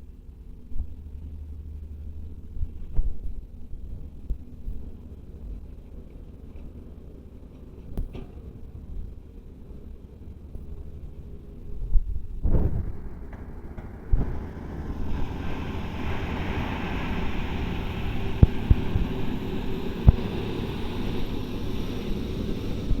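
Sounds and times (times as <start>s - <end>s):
diesel machinery rumbling: 0.0s - 23.0s
wind noise on microphone: 11.7s - 23.0s.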